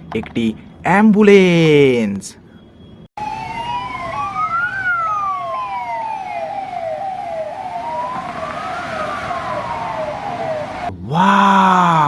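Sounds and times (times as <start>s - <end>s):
toy ambulance siren: 3.2s - 10.9s.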